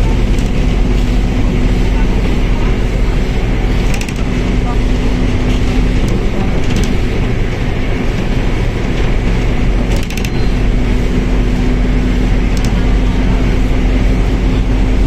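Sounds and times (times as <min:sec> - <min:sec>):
bus drivetrain drone: 0:00.0 - 0:15.0.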